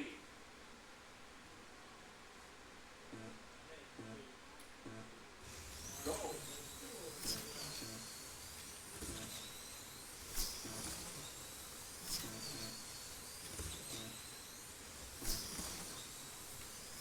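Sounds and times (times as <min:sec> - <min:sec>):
slot car motor whine: 0:04.9 - 0:17.0.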